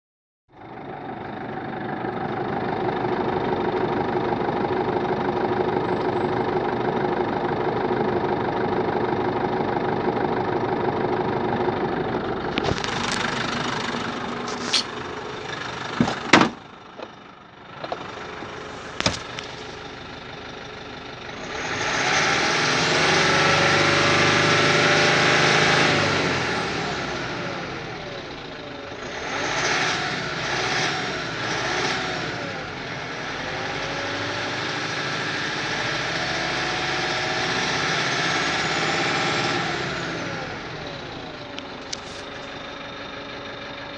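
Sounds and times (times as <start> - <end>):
diesel engine idling and revving: 0.5 - 43.9.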